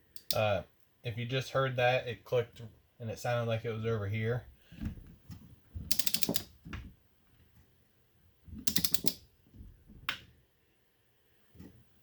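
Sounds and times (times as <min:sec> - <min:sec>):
torque wrench ratchet clicking: 0:08.7 - 0:09.2.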